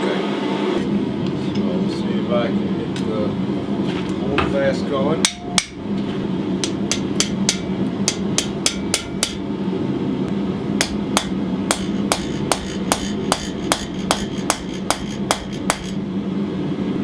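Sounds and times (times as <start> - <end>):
hammer striking chisel on hot steel: 5.2 - 5.8, 6.6 - 9.5, 10.8 - 16.0.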